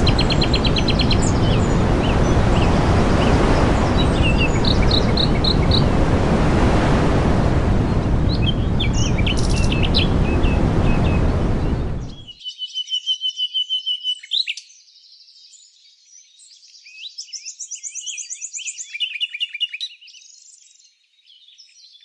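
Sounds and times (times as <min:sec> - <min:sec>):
small birds chirping: 0:00.0 - 0:06.1, 0:07.9 - 0:13.3
loud steady rushing noise: 0:00.0 - 0:12.3.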